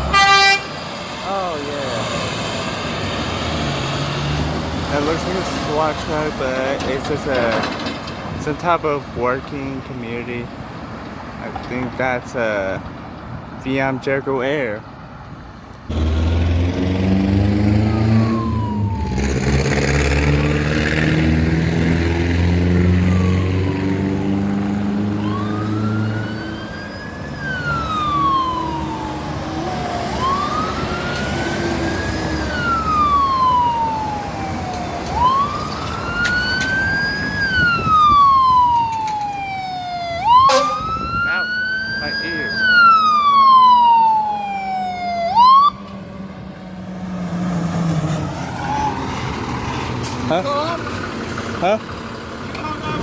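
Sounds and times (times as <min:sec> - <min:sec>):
wail siren: 0:00.0 - 0:02.1, 0:17.4 - 0:46.9, 0:47.8 - 0:49.4
fire engine rising engine note: 0:15.9 - 0:53.0.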